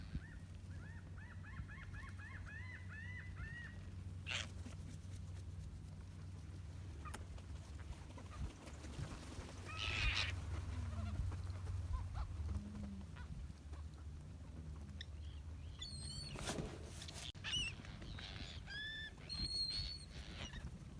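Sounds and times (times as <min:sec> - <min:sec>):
birds calling: 0:07.8 - 0:12.4, 0:15.0 - 0:20.9.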